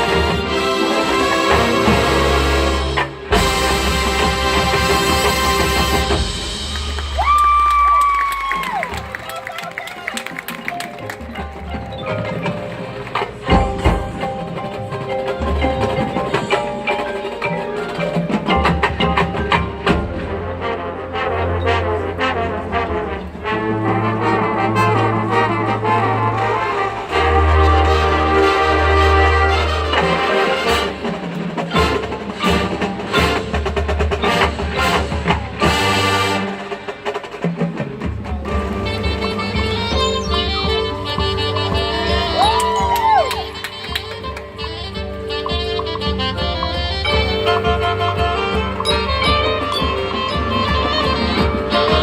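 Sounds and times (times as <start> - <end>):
marching band music: 0.0 - 52.0
mallet percussion notes: 8.5 - 21.9, 38.0 - 52.0.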